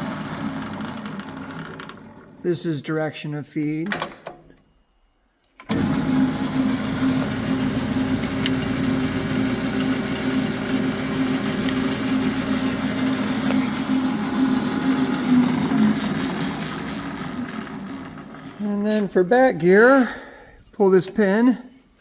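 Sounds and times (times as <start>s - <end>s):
metal lathe motor humming: 5.7s - 18.6s.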